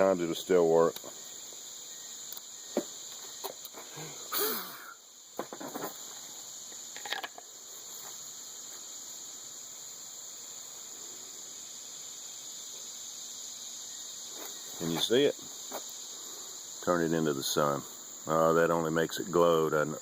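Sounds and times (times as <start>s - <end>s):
insects chirring: 0.0s - 20.0s
handling knocks and rustles: 5.4s - 6.2s.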